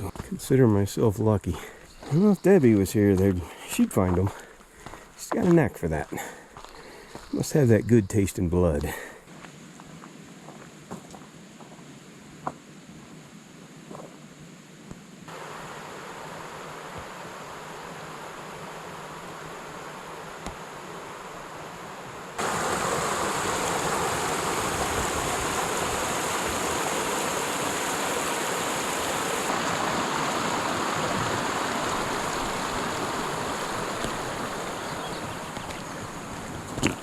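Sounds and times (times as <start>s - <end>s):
quiet steady hiss: 0.0s - 37.0s
creek water rushing: 15.3s - 37.0s.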